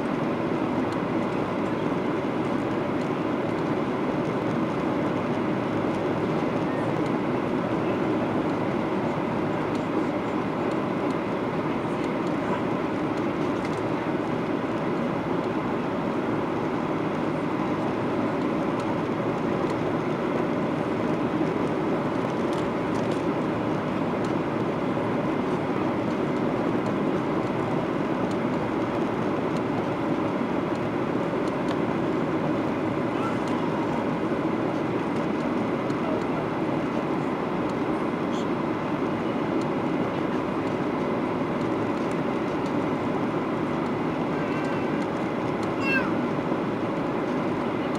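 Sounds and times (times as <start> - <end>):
jet engine drone: 0.0 - 47.9.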